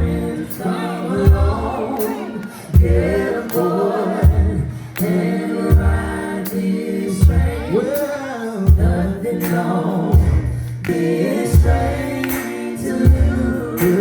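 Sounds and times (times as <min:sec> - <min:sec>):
gospel band playing: 0:00.0 - 0:14.0
vocal group singing in harmony: 0:00.0 - 0:14.0
drum hits: 0:01.2 - 0:01.8, 0:02.8 - 0:03.5, 0:04.2 - 0:04.7, 0:05.7 - 0:06.6, 0:08.7 - 0:09.2, 0:10.2 - 0:10.8, 0:11.6 - 0:12.5, 0:13.1 - 0:14.0.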